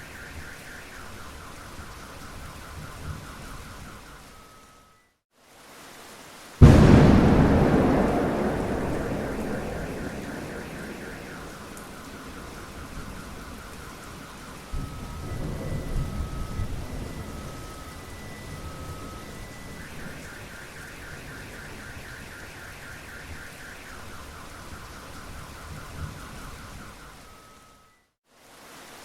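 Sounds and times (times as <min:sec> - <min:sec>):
heavy rain: 0:05.4 - 0:26.6, 0:28.4 - 0:29.0
thunder rumble: 0:06.6 - 0:17.8.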